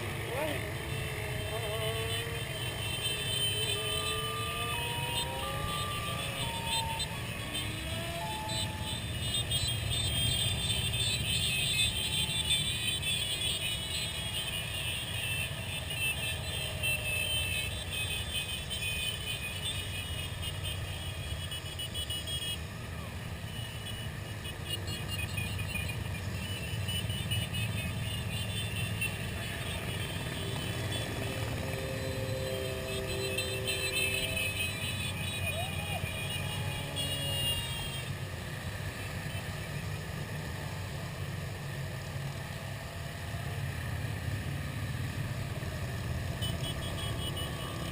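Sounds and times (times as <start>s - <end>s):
many motorcycle engines rumbling: 0.0s - 47.9s
crowd voices: 29.2s - 38.2s.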